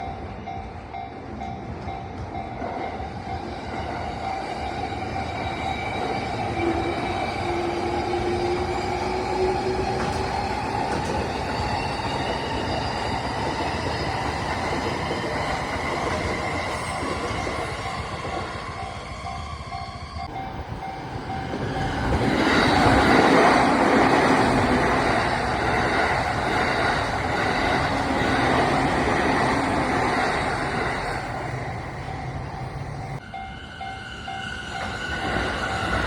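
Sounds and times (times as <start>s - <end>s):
crossing warning bell ringing: 0.0s - 36.0s
train whine: 0.0s - 36.0s
train wheel rail noise: 1.8s - 20.3s.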